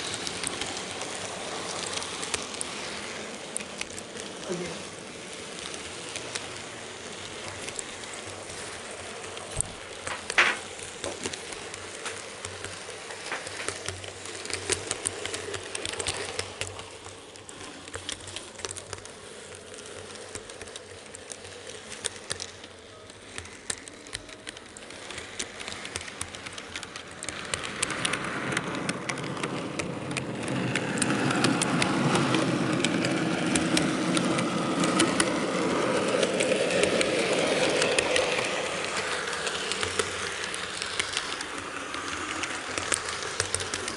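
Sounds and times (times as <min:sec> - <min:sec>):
model train wheels clicking over rail joints: 0:00.0 - 0:43.9.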